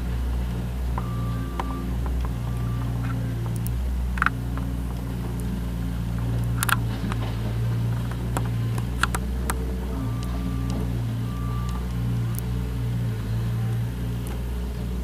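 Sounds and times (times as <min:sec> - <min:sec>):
diesel engine running: 0:00.0 - 0:15.0
metallic clanks and clicks: 0:06.3 - 0:09.6.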